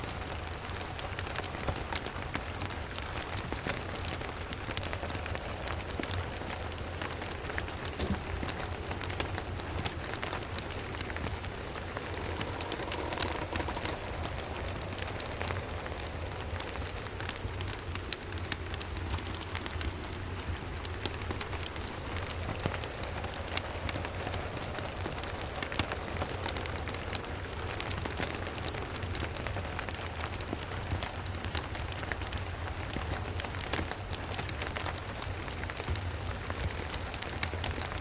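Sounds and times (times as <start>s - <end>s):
steady rain falling: 0.0s - 38.0s
low rumble: 4.3s - 28.3s.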